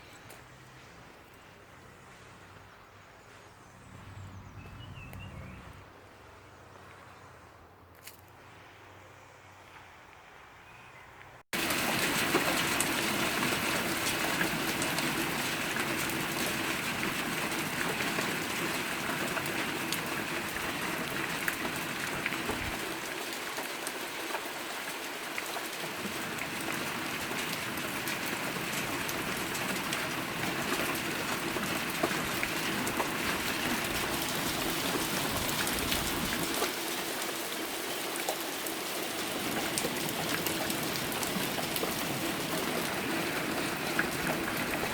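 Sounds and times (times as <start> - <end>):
heavy rain falling: 11.6 - 44.9.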